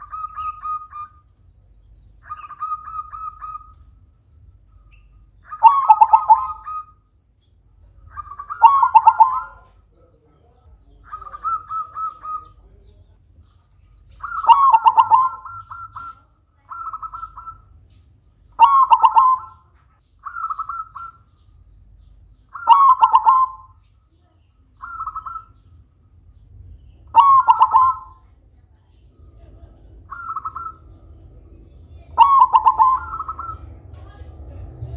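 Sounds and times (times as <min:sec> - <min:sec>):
dove cooing: 0:00.0 - 0:01.2, 0:02.2 - 0:03.9, 0:05.4 - 0:07.0, 0:08.1 - 0:10.1, 0:10.9 - 0:12.8, 0:14.1 - 0:17.8, 0:18.5 - 0:21.4, 0:22.5 - 0:23.8, 0:24.8 - 0:25.6, 0:27.0 - 0:28.3, 0:29.1 - 0:34.9.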